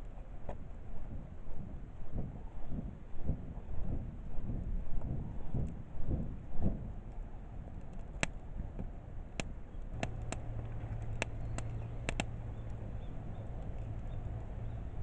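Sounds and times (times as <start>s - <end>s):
steady low hum: 0.0s - 15.0s
wood fire crackling: 6.8s - 15.0s.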